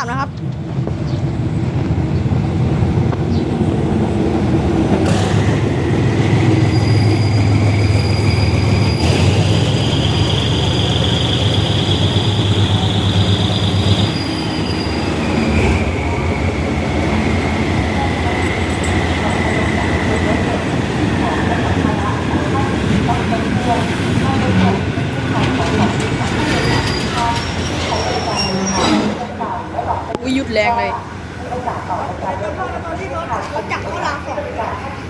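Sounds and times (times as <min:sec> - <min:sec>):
locomotive engine rumbling: 0:00.0 - 0:35.0
wheels squealing on rails: 0:05.1 - 0:29.4.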